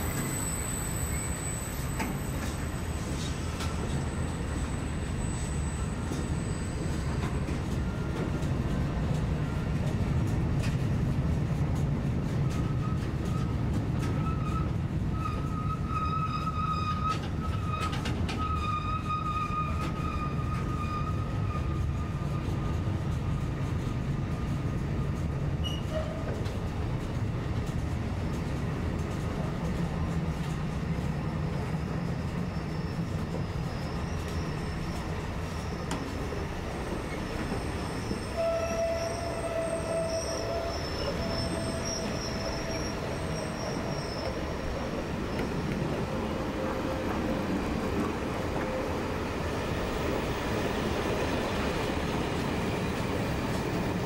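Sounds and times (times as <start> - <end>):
thin squealing tones: 0.0 - 8.0, 31.4 - 51.7
train wheels rumbling on rails: 0.0 - 54.0.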